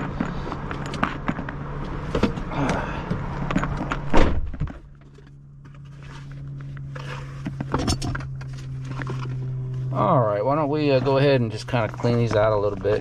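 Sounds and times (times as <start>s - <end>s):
loud thunk: 4.1s - 4.7s.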